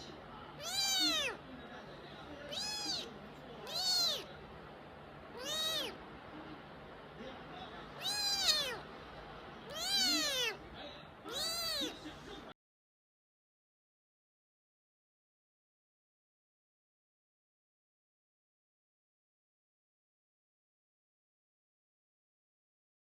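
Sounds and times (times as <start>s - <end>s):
cat meowing: 0.6s - 1.4s, 2.5s - 4.3s, 5.3s - 6.0s, 8.0s - 8.8s, 9.7s - 10.6s, 11.3s - 12.0s.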